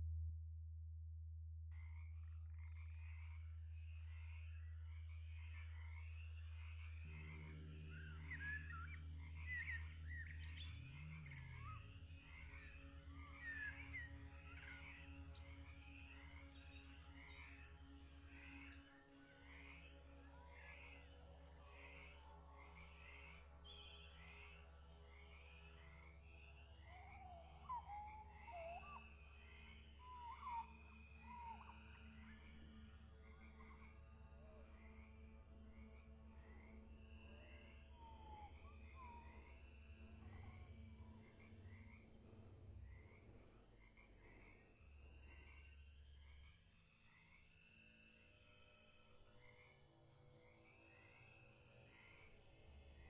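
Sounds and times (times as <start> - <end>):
steady low drone: 0.0 - 16.5
bird whistling gliding notes: 26.7 - 32.2.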